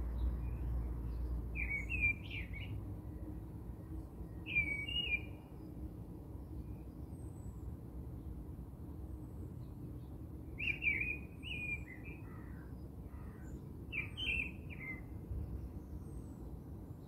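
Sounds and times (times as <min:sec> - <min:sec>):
small bird chirping: 0:00.1 - 0:02.7.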